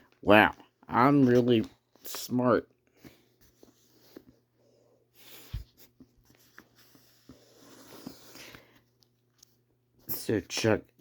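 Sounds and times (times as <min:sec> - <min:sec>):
book pages rustling: 0:00.8 - 0:04.5, 0:05.3 - 0:09.6.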